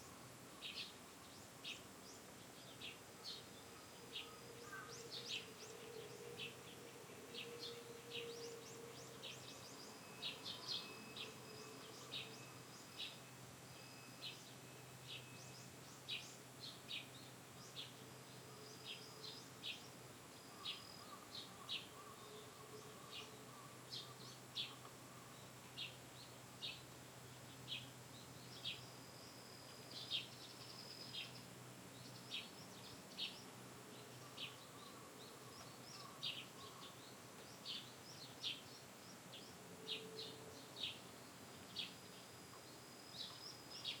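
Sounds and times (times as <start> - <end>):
outdoor background noise: 0.0 - 44.0
small bird chirping: 27.5 - 44.0.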